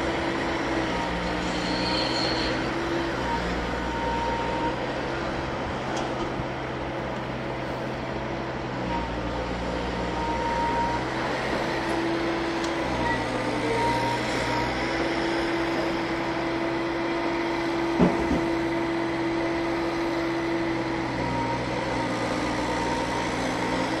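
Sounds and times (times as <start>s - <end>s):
train running slowly: 4.7s - 10.0s, 11.0s - 24.0s.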